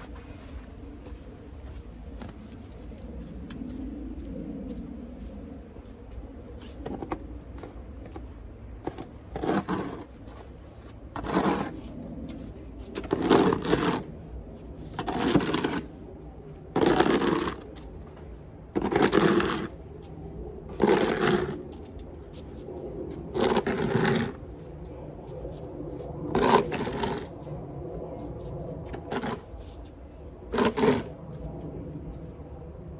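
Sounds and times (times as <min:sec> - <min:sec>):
snow shovel scraping snow: 0:08.9 - 0:10.5, 0:11.2 - 0:11.9, 0:13.0 - 0:14.1, 0:14.9 - 0:15.9, 0:16.8 - 0:17.7, 0:18.8 - 0:19.8, 0:20.7 - 0:21.6, 0:23.3 - 0:24.4, 0:26.3 - 0:27.3, 0:28.9 - 0:29.6, 0:30.5 - 0:31.2.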